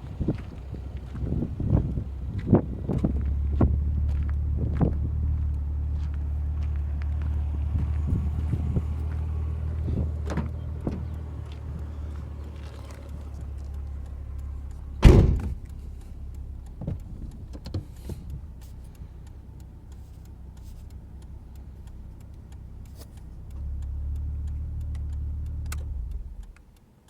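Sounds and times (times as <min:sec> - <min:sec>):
steady low rumble: 0:00.0 - 0:26.8
light clicks and knocks: 0:06.6 - 0:26.8
car door shutting: 0:08.8 - 0:18.4.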